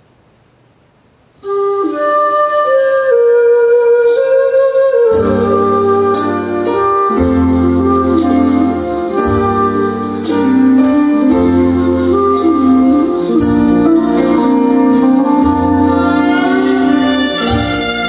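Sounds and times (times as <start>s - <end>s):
faint hiss: 0.0s - 18.0s
recorded song through loudspeaker: 5.1s - 18.0s.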